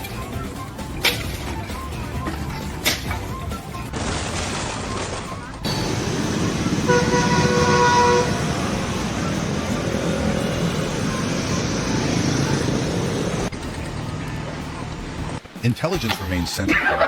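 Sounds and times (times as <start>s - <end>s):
vehicle engine and traffic rumble: 0.0s - 15.7s
vehicle horn blast: 5.7s - 11.7s.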